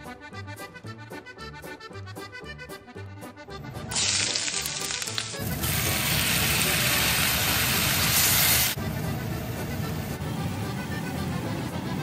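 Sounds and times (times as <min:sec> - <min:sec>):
vegetables sizzling in a frying pan: 0:03.9 - 0:08.8.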